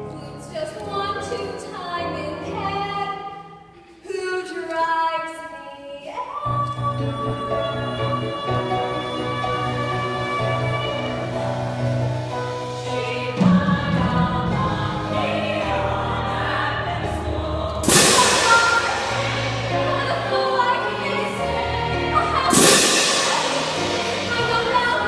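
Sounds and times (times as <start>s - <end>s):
group of voices singing: 12.8s - 25.0s
loud crashes: 13.4s - 16.3s, 17.8s - 25.0s.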